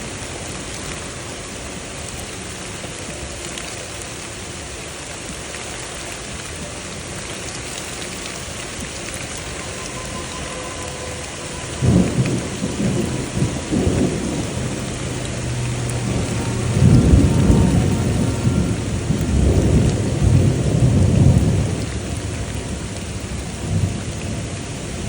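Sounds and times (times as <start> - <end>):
steady rain falling: 0.0 - 25.0
thunder clap and rumble: 6.3 - 25.0.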